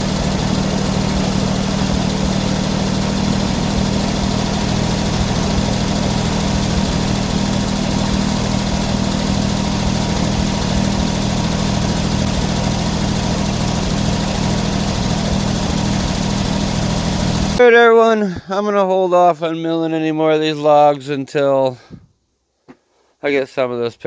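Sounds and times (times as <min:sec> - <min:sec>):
engine running steadily: 0:00.0 - 0:17.6.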